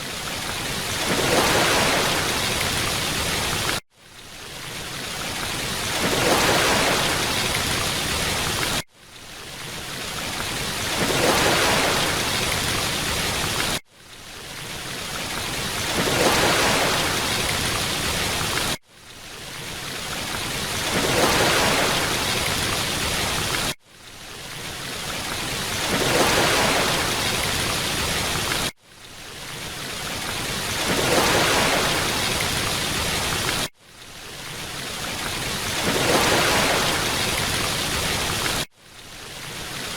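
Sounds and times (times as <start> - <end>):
waterfall rushing water: 0.0 - 3.8, 19.5 - 23.7, 24.3 - 39.9.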